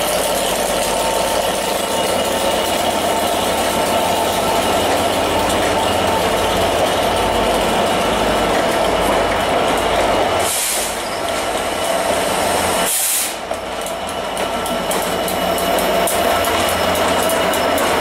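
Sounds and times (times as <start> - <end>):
diesel locomotive engines droning: 0.0 - 18.0
train coaches running on rails: 0.0 - 18.0
air hiss bursts: 10.4 - 11.0, 12.8 - 13.4.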